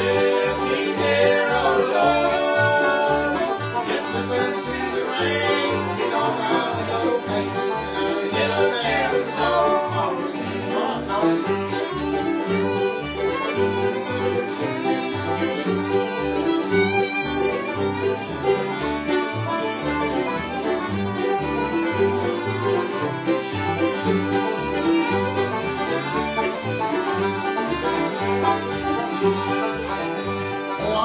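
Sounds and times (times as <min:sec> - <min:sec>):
banjo: 0:00.0 - 0:31.0
bass notes: 0:00.0 - 0:31.0
fiddle: 0:00.0 - 0:31.0
rhythm guitar: 0:11.2 - 0:31.0.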